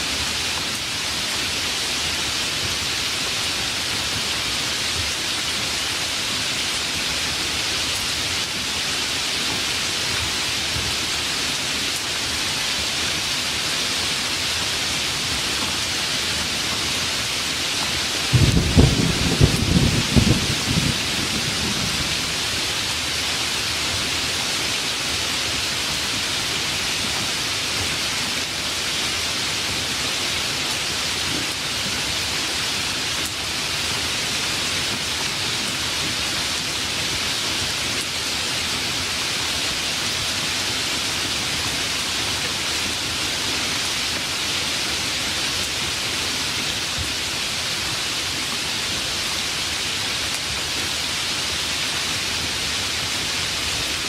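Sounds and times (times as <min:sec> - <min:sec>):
steady rain: 0:00.0 - 0:54.0
low thunder rumble: 0:18.3 - 0:22.6.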